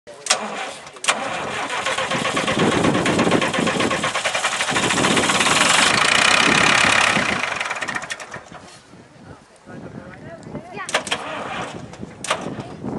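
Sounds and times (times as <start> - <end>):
tractor engine running: 0.2 - 8.9, 10.9 - 12.8
sharp click: 11.9 - 12.7.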